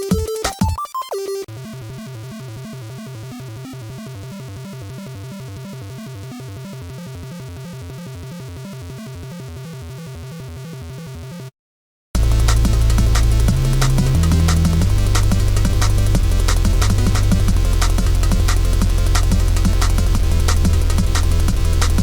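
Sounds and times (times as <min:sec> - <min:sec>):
background music with fast beat: 0:00.0 - 0:01.4, 0:12.2 - 0:22.0.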